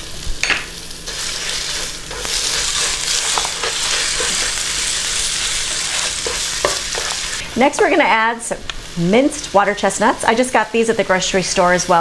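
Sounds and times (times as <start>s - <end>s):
chicken sizzling in hot oil: 0.0s - 12.0s
spatula stirring: 1.1s - 7.4s.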